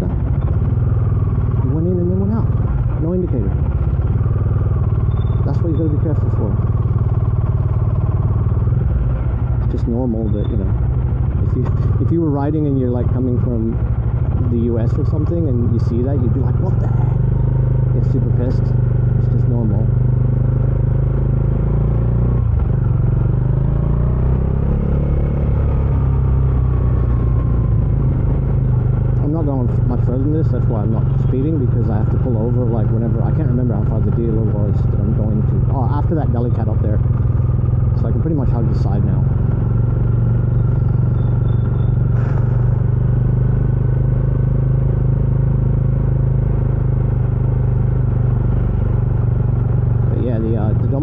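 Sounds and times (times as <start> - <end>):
motorcycle engine at low speed: 0.0 - 51.0.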